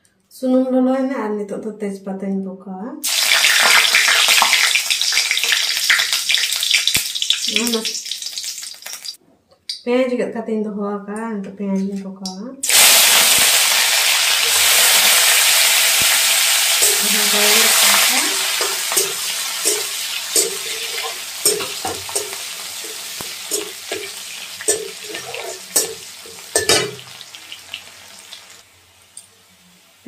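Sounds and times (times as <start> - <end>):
food sizzling in hot oil: 3.0 - 9.2, 12.6 - 30.0
metal spatula scraping wok: 16.6 - 27.2.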